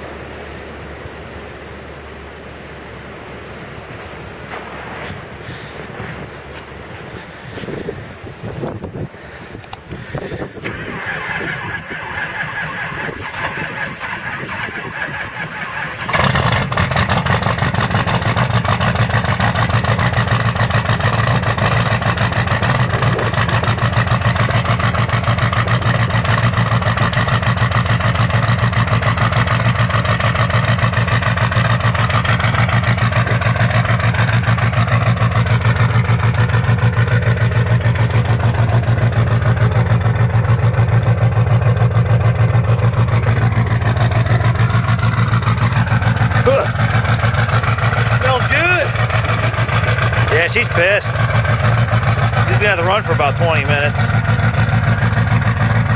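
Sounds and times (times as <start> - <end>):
diesel engine idling: 0.0 - 55.9
starter motor cranking: 9.6 - 40.4, 42.7 - 55.9.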